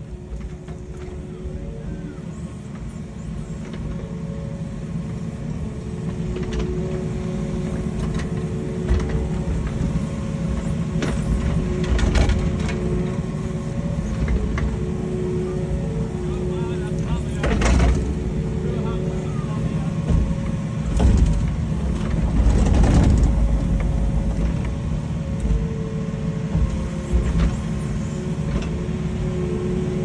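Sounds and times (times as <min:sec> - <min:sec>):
machine engine running: 0:00.0 - 0:30.0.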